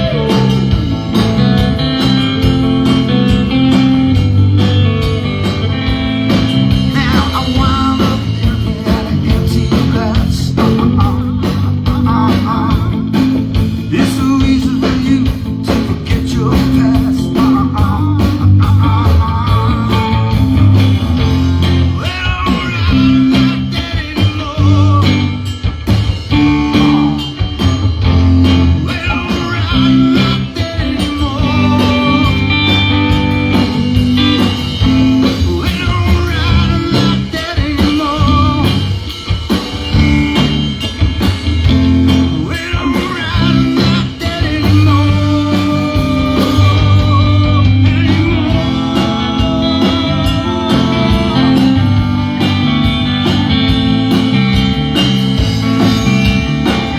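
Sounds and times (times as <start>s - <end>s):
blues-rock band playing: 0.0s - 56.9s
electric guitar: 0.0s - 56.9s.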